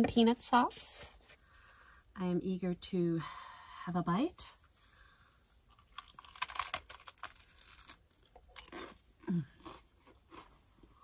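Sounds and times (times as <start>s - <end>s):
crunching raw vegetable wrap: 5.6s - 11.0s.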